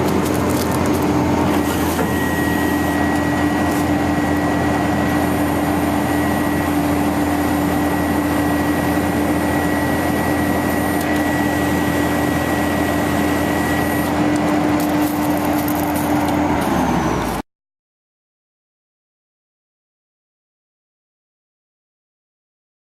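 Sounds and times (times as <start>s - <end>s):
constant whine: 0.0s - 17.4s
truck engine running: 0.0s - 17.4s.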